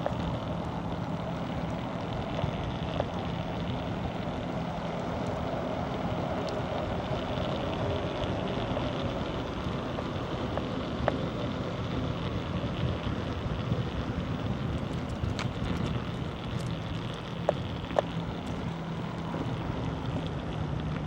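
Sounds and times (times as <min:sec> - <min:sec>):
bicycle road noise: 0:00.0 - 0:21.0
wind on microphone: 0:06.9 - 0:21.0
faint clicks: 0:07.4 - 0:21.0.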